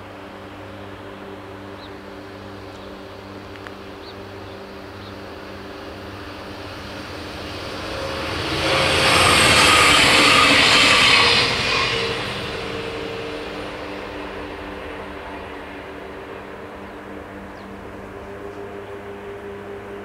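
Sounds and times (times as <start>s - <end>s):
diesel railcar passing: 0.0s - 20.0s
steady low hum: 0.0s - 20.0s.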